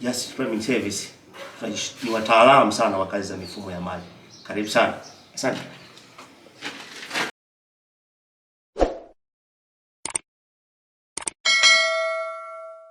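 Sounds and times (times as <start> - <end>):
bell-like ding: 11.5 - 12.9.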